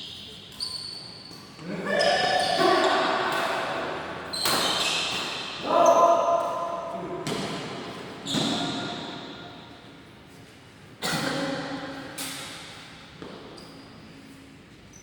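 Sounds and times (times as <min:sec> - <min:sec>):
rackets hitting shuttlecock: 0:03.2 - 0:09.5.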